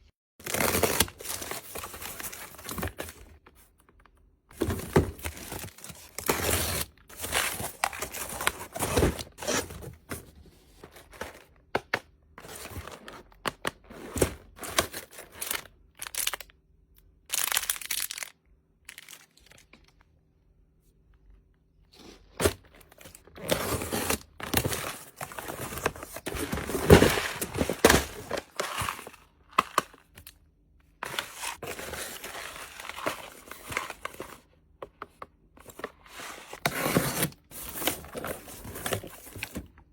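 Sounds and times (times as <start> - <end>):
plastic packaging crinkling and tearing: 14.6 - 16.5, 17.3 - 19.8, 23.1 - 30.4.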